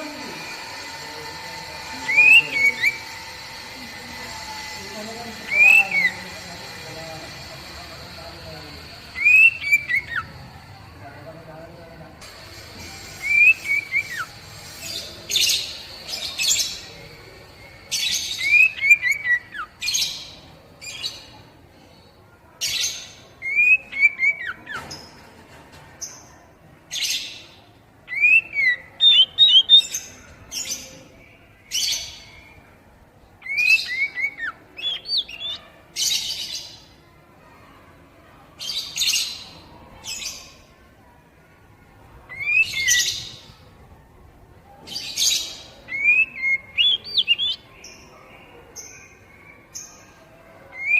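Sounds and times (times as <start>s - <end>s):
songbird whistling and chattering: 0.0s - 10.5s, 12.4s - 21.3s, 23.4s - 24.8s, 28.1s - 30.0s, 33.4s - 36.6s, 42.3s - 43.5s, 45.0s - 47.7s.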